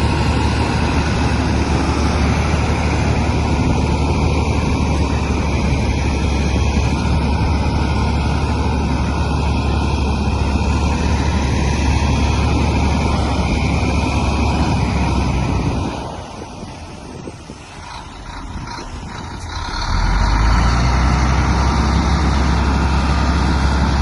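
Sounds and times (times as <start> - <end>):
bulldozer diesel engine droning: 0.0 - 24.0.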